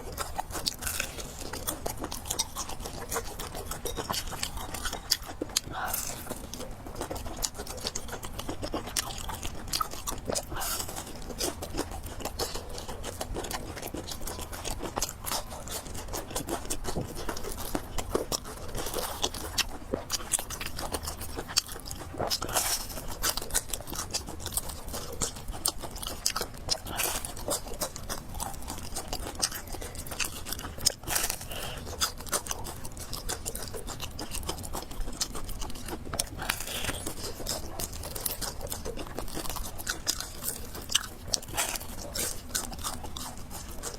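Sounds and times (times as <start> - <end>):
person chewing crunchy food: 0.0 - 43.9.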